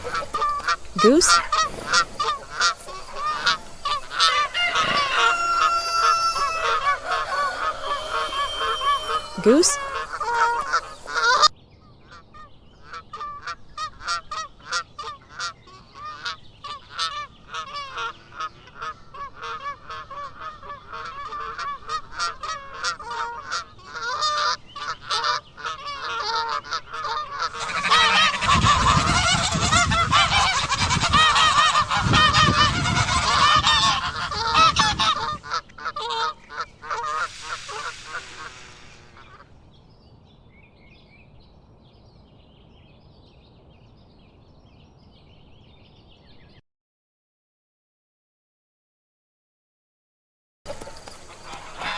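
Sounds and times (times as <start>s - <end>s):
geese honking: 0.0s - 11.5s, 12.9s - 39.5s, 50.7s - 51.9s.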